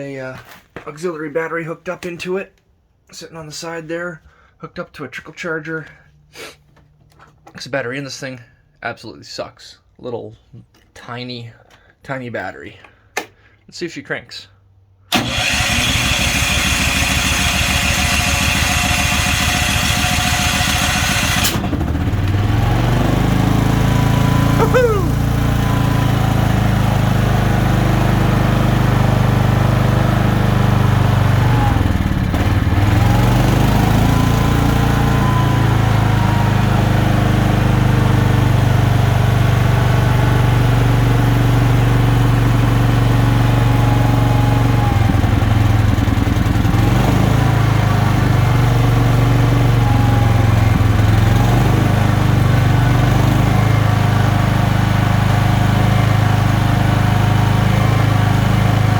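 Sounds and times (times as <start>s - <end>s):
electric starter cranking: 15.1s - 58.9s
generator engine running: 15.1s - 58.9s.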